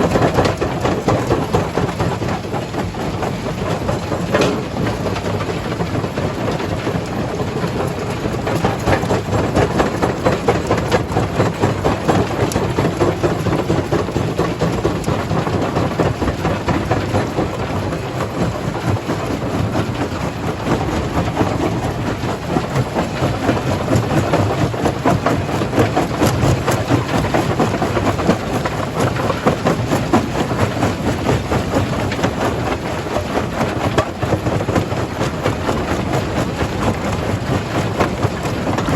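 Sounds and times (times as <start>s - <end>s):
jaw crusher rumbling: 0.0s - 38.9s.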